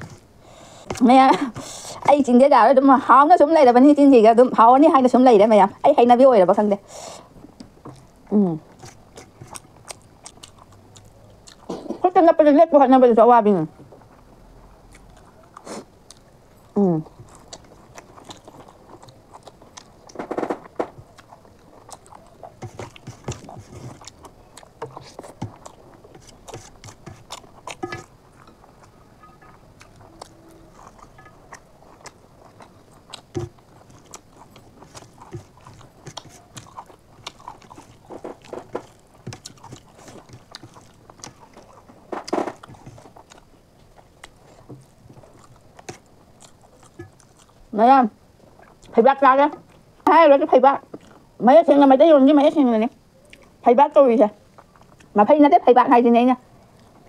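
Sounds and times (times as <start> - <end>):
person chewing food: 6.9 - 11.9, 14.8 - 47.7, 48.4 - 49.0, 50.9 - 51.3, 54.4 - 55.2, 56.6 - 57.0.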